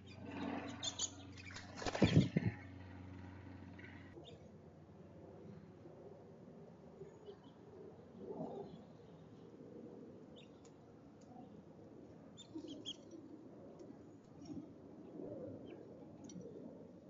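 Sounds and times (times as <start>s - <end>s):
small birds chirping: 0.0s - 4.5s, 12.4s - 13.2s
low background rumble: 0.0s - 7.2s.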